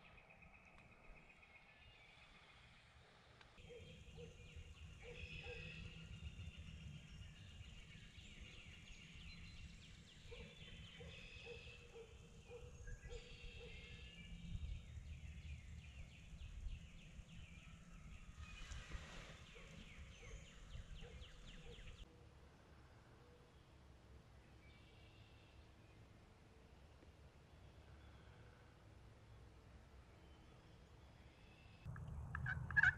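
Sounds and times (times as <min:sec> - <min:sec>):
birds singing and chirping: 0:03.6 - 0:22.1, 0:31.6 - 0:32.9
repeated lower bird notes: 0:31.9 - 0:32.9
steady low rumble: 0:31.9 - 0:32.9.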